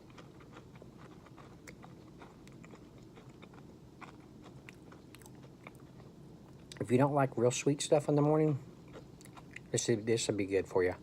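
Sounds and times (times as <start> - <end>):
person chewing crunchy granola bar: 0.0 - 6.9, 8.8 - 9.8.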